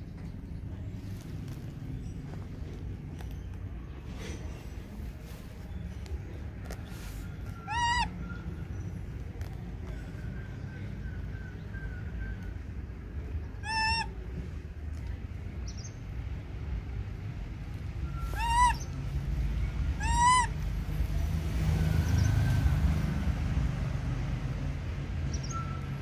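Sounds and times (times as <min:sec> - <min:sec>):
steady low rumble: 0:00.0 - 0:21.7
baby macaque high calls: 0:07.4 - 0:08.5, 0:13.6 - 0:14.2, 0:18.2 - 0:19.1, 0:19.9 - 0:20.6.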